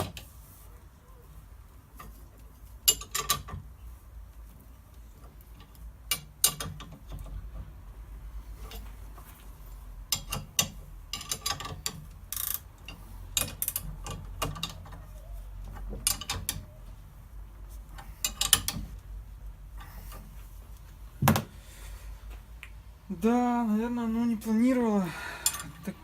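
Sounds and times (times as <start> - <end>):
ratchet wrench clicking: 10.1 - 14.8.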